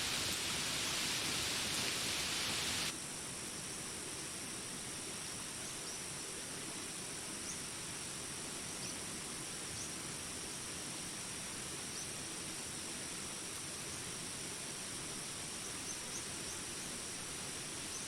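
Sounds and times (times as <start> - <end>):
insects buzzing: 0.0 - 2.9
faint insect chirps: 0.0 - 18.0
rain hiss: 0.0 - 18.0.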